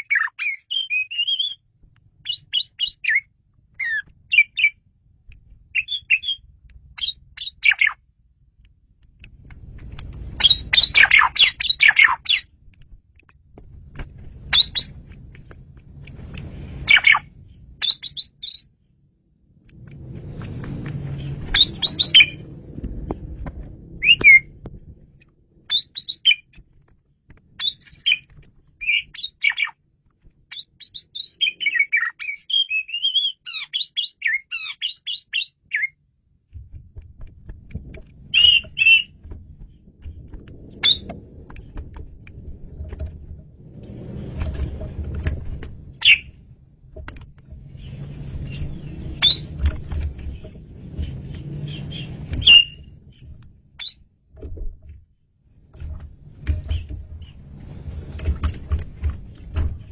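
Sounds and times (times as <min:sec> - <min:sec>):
starling singing whistles: 0:00.0 - 0:01.6, 0:02.3 - 0:04.8, 0:05.8 - 0:06.4, 0:10.4 - 0:12.4, 0:14.5 - 0:14.9, 0:17.8 - 0:18.7, 0:21.5 - 0:22.4, 0:24.0 - 0:24.5, 0:25.7 - 0:26.5, 0:27.6 - 0:29.8, 0:30.5 - 0:36.0, 0:38.3 - 0:39.2, 0:40.8 - 0:41.0, 0:46.0 - 0:46.3, 0:48.5 - 0:49.5, 0:51.6 - 0:52.9
low rumble: 0:03.5 - 0:29.1, 0:36.3 - 0:59.9.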